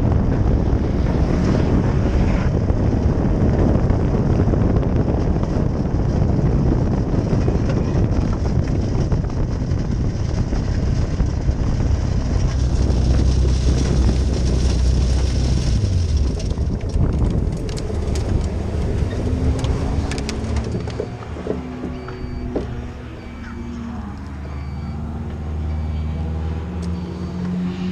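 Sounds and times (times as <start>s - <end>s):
wind on microphone: 0.0s - 24.7s
car engine and road drone: 0.0s - 27.9s
sharp clicks: 19.4s - 22.8s.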